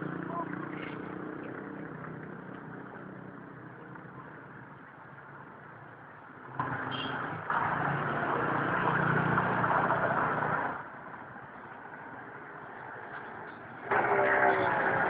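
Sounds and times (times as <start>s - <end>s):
vehicle engine running: 0.0s - 4.9s
street noise: 0.0s - 15.0s.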